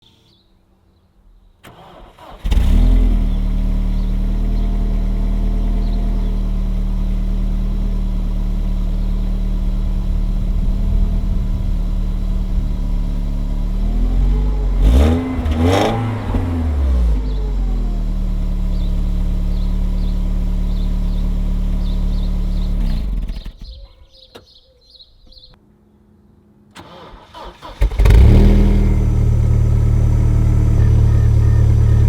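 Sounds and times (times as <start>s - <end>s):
engine revving: 1.6s - 23.7s, 26.8s - 32.0s
car engine idling: 1.7s - 23.8s, 27.4s - 32.0s.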